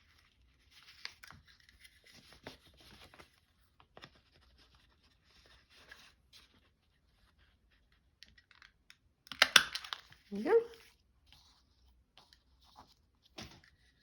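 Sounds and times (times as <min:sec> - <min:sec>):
paper rustling: 0:00.0 - 0:08.0.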